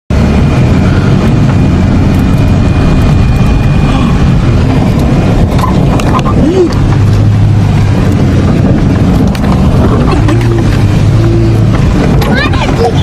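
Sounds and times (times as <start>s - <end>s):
car engine running: 0.1s - 13.0s.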